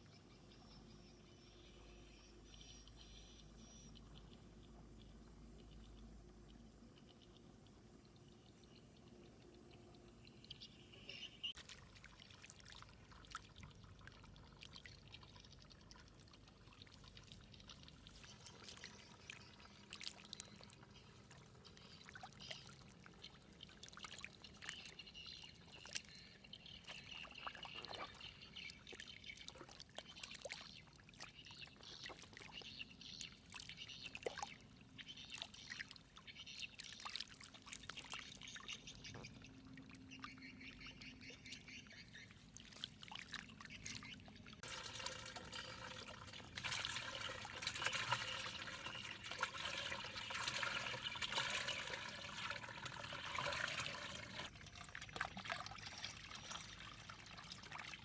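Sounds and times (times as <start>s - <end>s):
water pouring and trickling: 11.5s - 40.1s, 40.8s - 58.0s
small splashes and clicks: 11.6s - 58.0s.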